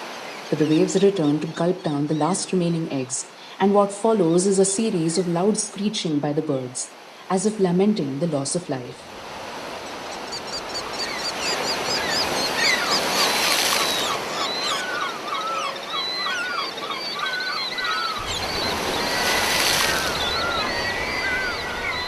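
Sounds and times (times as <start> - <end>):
surf waves surging: 9.0 - 15.4, 17.8 - 22.0
seagulls screeching: 10.2 - 22.0.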